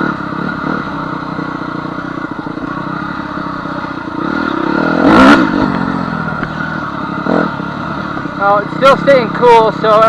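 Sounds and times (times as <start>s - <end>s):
dirt bike engine running: 0.0s - 10.0s.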